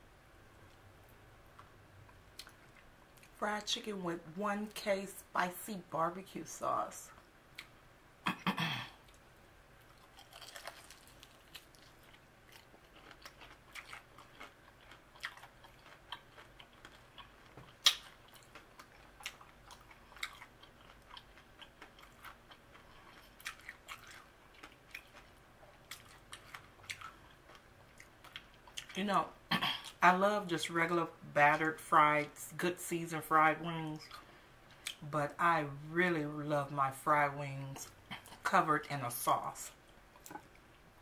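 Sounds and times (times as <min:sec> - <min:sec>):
person chewing crunchy food: 0:09.8 - 0:29.0.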